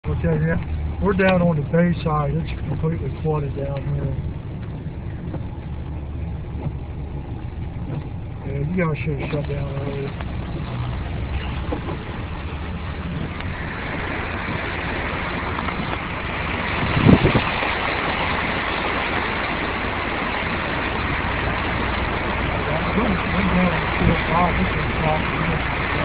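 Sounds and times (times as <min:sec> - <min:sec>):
car engine running low: 0:00.0 - 0:26.0
water hissing around car: 0:00.2 - 0:26.0.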